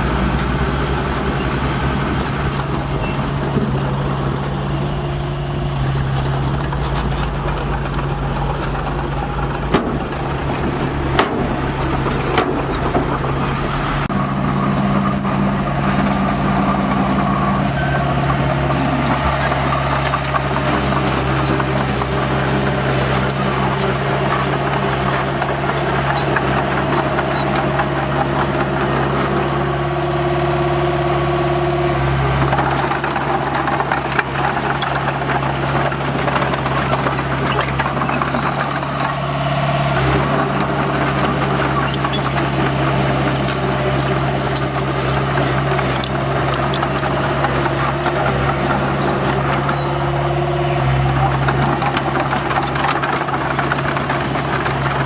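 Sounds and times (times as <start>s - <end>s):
heavy diesel engine running: 0.0s - 55.0s
faint knocks and clanks: 2.9s - 13.8s.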